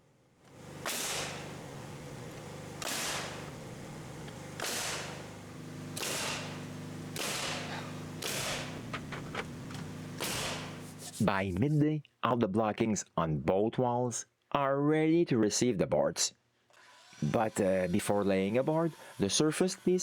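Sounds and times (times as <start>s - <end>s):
steady motor hum: 0.4s - 11.3s
nail gun shots with hiss: 0.8s - 1.6s, 2.8s - 3.5s, 4.6s - 5.3s, 5.9s - 9.3s, 10.2s - 10.9s.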